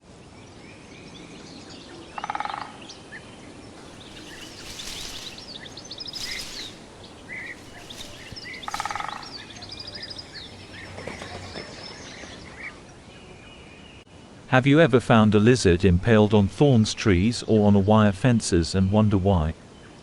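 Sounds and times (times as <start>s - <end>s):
rapid rattling bird call: 3.8s - 12.3s
birds chirping and whistling: 3.8s - 12.4s.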